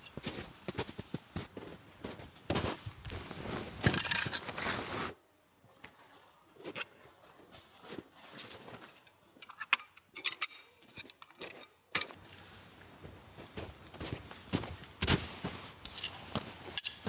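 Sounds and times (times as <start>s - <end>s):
ringing metal clink: 9.4s - 11.4s
small metal items clinking: 9.4s - 12.4s.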